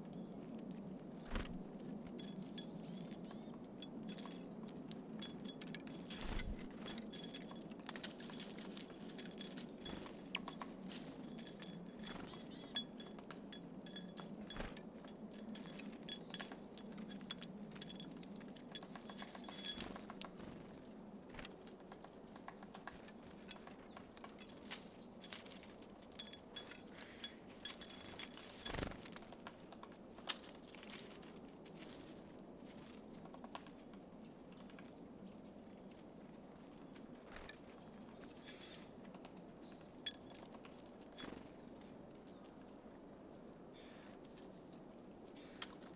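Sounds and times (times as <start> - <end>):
beaks tapping on seeds and feeder: 0.0 - 31.2, 36.6 - 42.4.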